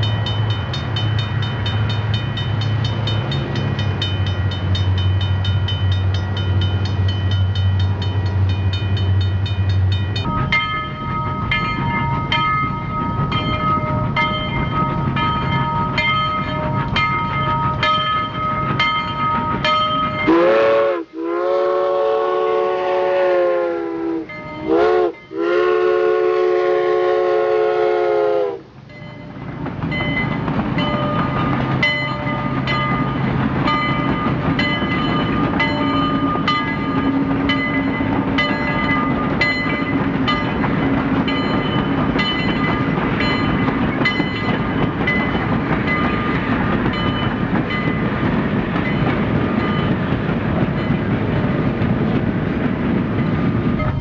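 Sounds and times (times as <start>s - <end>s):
rail clicks: 0.0s - 23.4s, 24.1s - 54.0s
train clattering: 0.0s - 54.0s
train whistle blasts: 20.2s - 28.7s.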